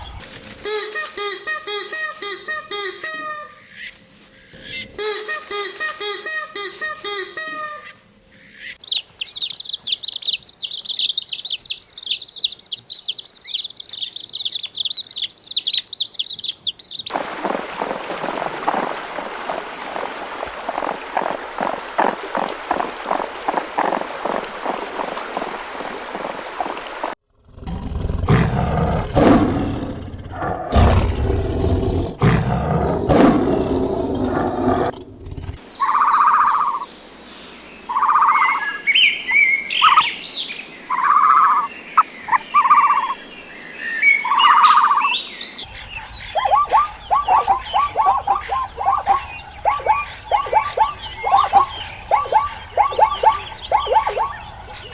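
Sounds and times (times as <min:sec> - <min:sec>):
higher chirps: 0:08.7 - 0:17.2, 0:46.2 - 0:54.9
bird hooting notes: 0:45.7 - 0:54.9
loud low-pitched animal calls: 0:45.7 - 0:54.9
rapid chattering trills: 0:46.3 - 0:54.9.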